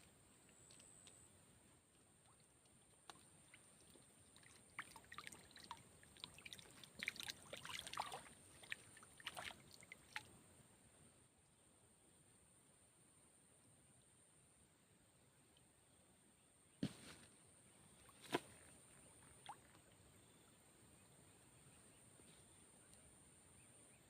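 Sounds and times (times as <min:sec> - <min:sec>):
small water splashes: 0:02.2 - 0:10.3, 0:18.0 - 0:20.0.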